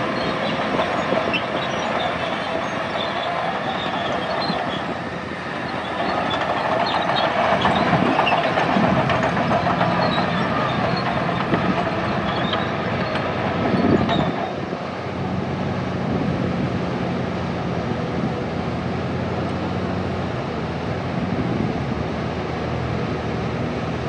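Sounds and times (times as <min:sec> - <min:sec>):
steel tracks clanking and squealing: 0:00.0 - 0:15.6
diesel engine under load: 0:00.0 - 0:24.0.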